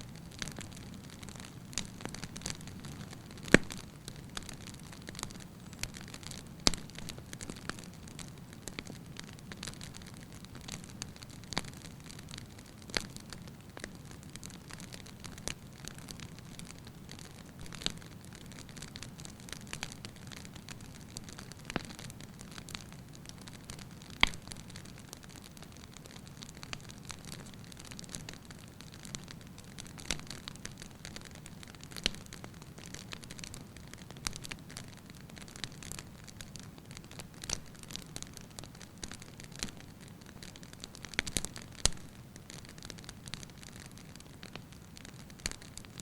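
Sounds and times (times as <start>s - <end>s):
fire popping and snapping: 0.0s - 46.0s
hiss of burning logs: 0.0s - 46.0s.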